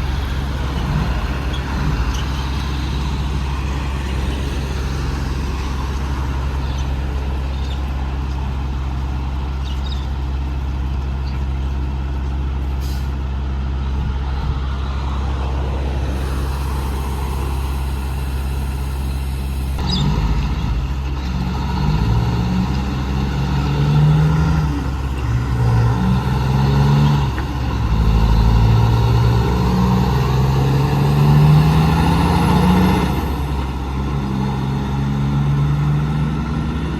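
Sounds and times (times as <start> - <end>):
truck diesel engine accelerating: 0.0 - 36.9.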